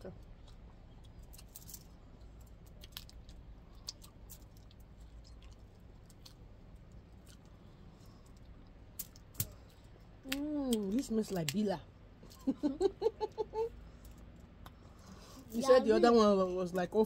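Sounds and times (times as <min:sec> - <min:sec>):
faint chewing with clicks: 0:00.1 - 0:11.6.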